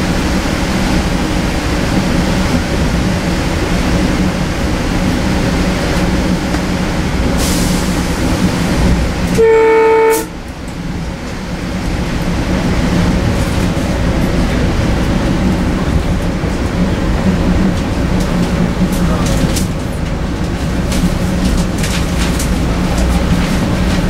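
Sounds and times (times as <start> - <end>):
train riding the rails: 0.0 - 24.0
train horn blast: 9.3 - 10.4.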